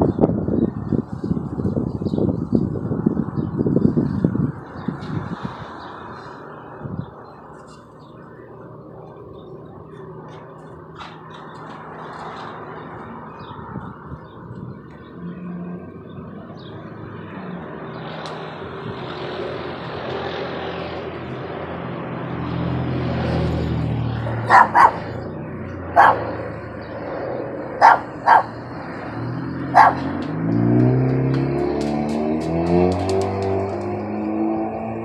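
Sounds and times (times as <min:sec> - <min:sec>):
helicopter flying overhead: 0:00.0 - 0:35.0
dog barking: 0:24.2 - 0:25.2, 0:25.9 - 0:26.4, 0:27.8 - 0:28.6, 0:29.7 - 0:30.2.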